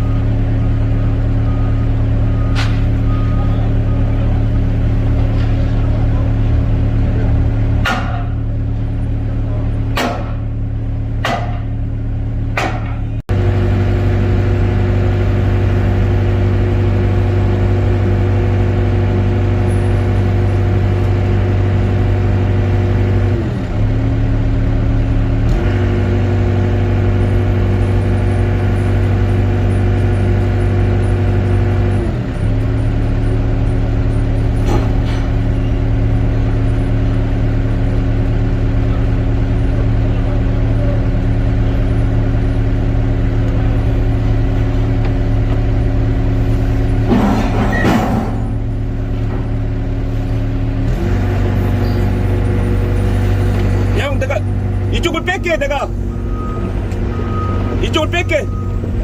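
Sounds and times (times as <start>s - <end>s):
excavator diesel engine running: 0.0s - 59.0s
sharp knocks: 7.8s - 8.4s, 9.9s - 10.5s, 11.2s - 11.7s, 12.6s - 13.0s.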